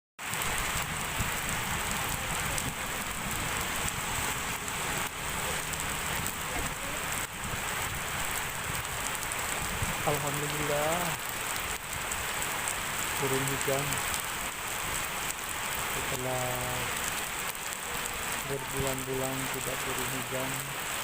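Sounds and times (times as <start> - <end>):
heavy rain falling: 0.2 - 21.0.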